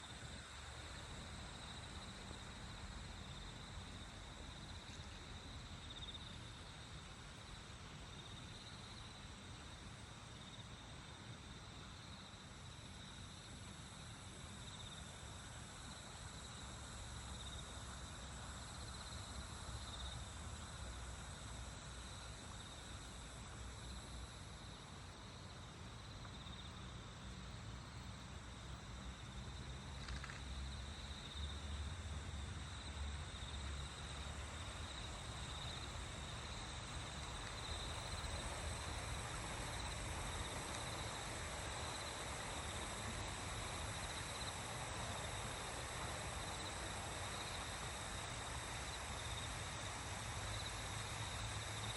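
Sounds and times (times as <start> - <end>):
insects trilling: 32.6 - 51.9.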